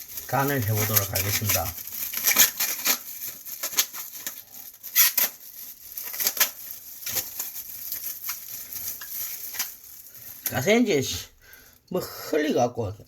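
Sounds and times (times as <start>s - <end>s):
plastic crinkling: 0.0s - 11.9s.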